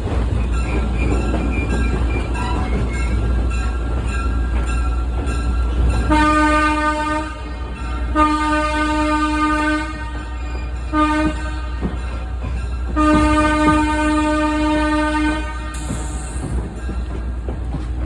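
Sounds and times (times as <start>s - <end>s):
train rumbling: 0.0s - 18.0s
locomotive horn blasts: 6.0s - 16.5s.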